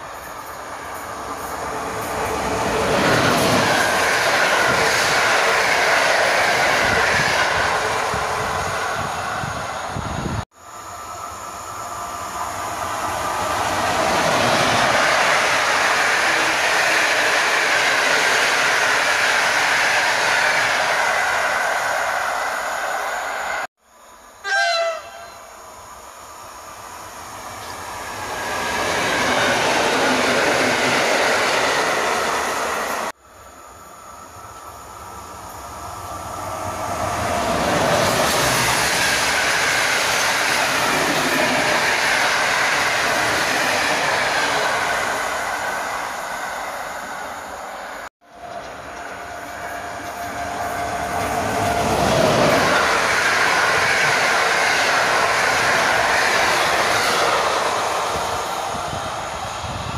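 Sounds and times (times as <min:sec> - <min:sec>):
train rumbling past: 0:00.0 - 0:59.9
train horn: 0:24.4 - 0:25.6.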